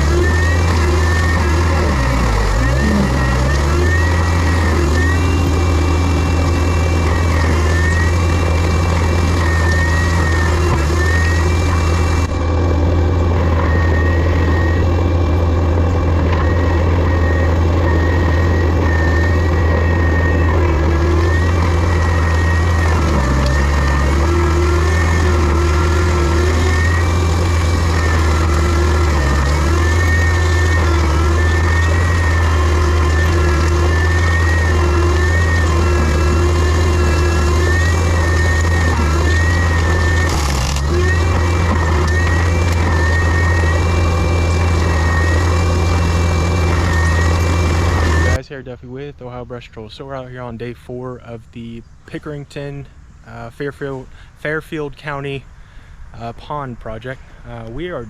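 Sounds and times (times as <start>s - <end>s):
high whine changing pitch: 0.0s - 54.0s
diesel engine running: 0.0s - 58.0s.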